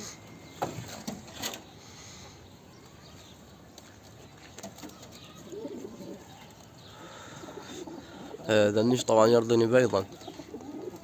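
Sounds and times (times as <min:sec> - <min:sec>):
pigeons cooing: 0:04.8 - 0:11.0.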